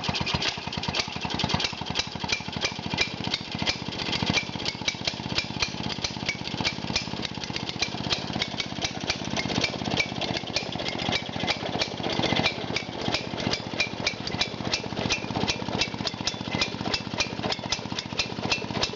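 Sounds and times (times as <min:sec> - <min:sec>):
lawn mower engine running: 0:00.0 - 0:18.9.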